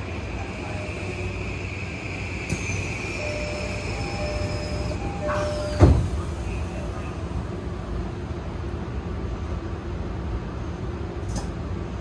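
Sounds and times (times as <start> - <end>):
train equipment hum: 0.0 - 12.0
click: 11.3 - 11.5.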